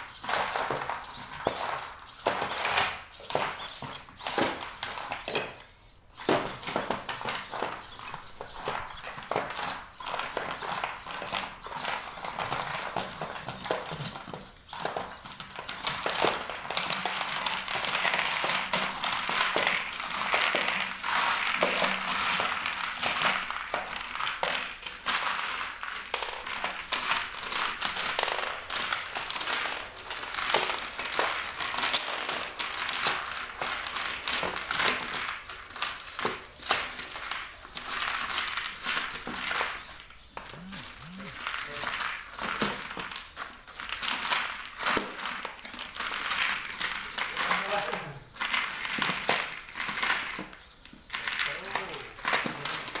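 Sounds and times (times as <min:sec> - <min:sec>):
robot feet tapping: 0:38.7 - 0:41.4
servo whine: 0:38.7 - 0:41.8.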